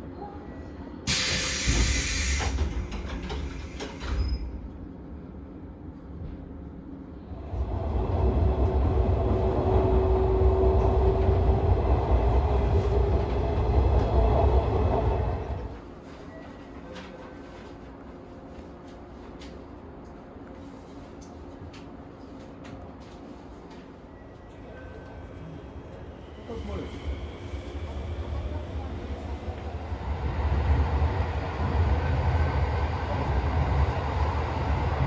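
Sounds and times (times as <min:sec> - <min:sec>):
train rumble: 0:01.0 - 0:35.0
air hiss: 0:01.1 - 0:02.6.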